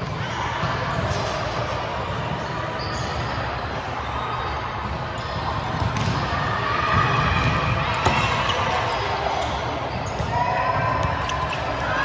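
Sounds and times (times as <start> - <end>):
volleyballs hit and bouncing: 4.7 - 12.0.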